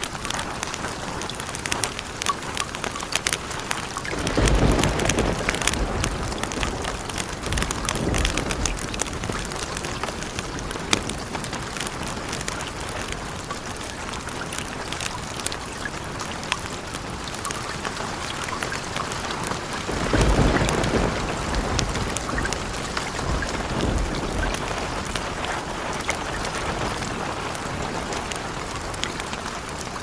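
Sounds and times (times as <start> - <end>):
steady rain: 0.0 - 30.0
thunder rumble: 4.1 - 13.5, 17.8 - 29.9.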